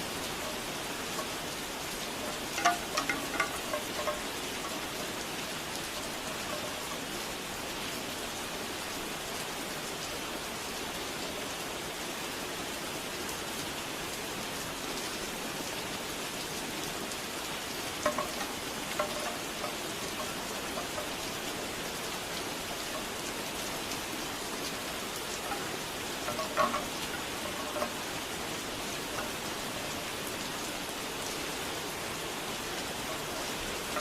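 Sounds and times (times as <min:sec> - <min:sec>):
bamboo wind chime clacking: 0:00.0 - 0:07.9, 0:17.8 - 0:31.8, 0:32.4 - 0:34.0
rain falling: 0:00.0 - 0:34.0.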